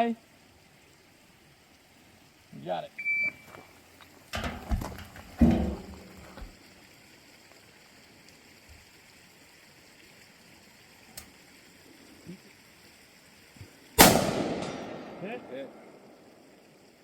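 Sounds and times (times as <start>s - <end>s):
faint outdoor hiss: 0.0s - 17.0s
loud gunshot echoing: 14.0s - 15.8s.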